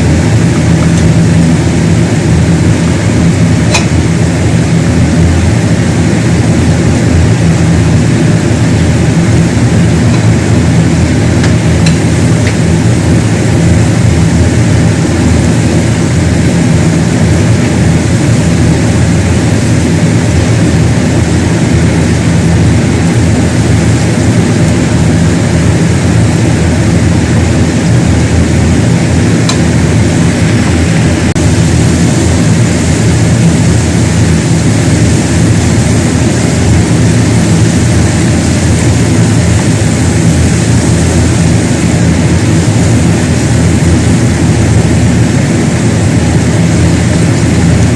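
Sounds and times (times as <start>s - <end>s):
mechanical drone: 0.0s - 47.9s.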